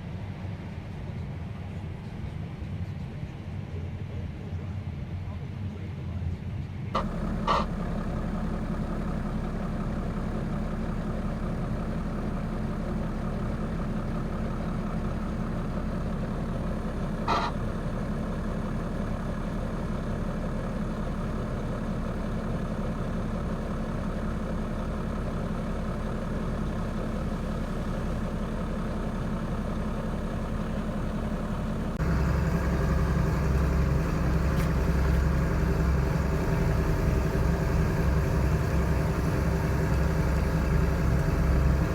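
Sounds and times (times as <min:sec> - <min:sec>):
diesel engine running: 0:07.0 - 0:41.9
brief high squeak: 0:17.3 - 0:17.6.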